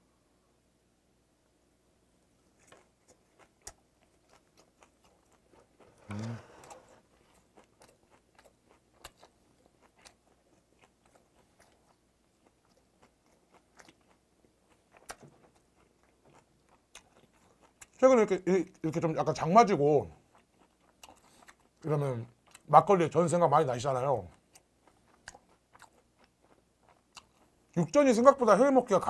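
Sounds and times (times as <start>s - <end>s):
person chewing: 2.4s - 18.0s, 18.7s - 22.7s, 24.0s - 28.0s
low voice sound: 6.0s - 6.9s.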